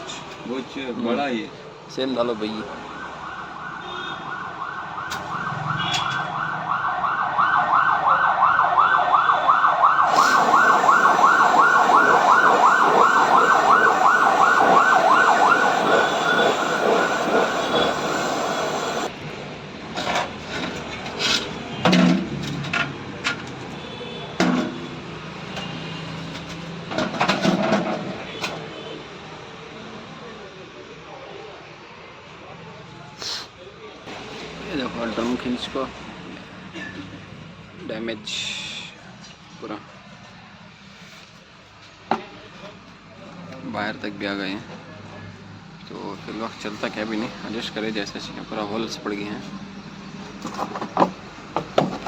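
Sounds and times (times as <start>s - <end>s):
fast warbling siren: 2.9s - 19.1s.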